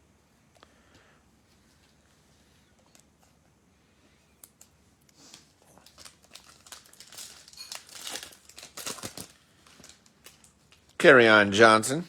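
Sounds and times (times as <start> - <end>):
wrapper crinkling and tearing: 5.3 - 11.0.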